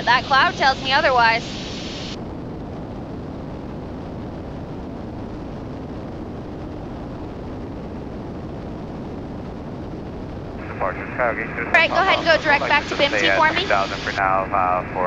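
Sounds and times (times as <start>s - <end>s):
aircraft engines droning in cabin: 0.0s - 15.0s.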